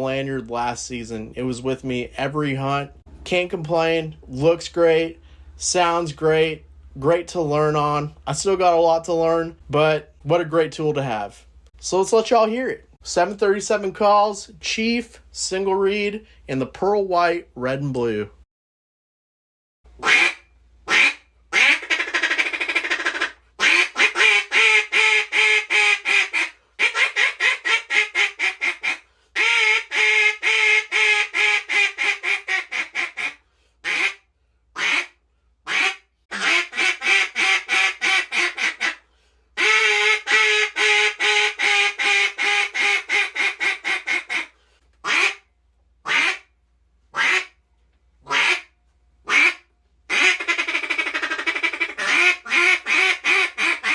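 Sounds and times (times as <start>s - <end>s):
duck call quacking: 20.0s - 34.2s, 34.8s - 46.5s, 47.1s - 47.6s, 48.2s - 48.7s, 49.3s - 53.9s.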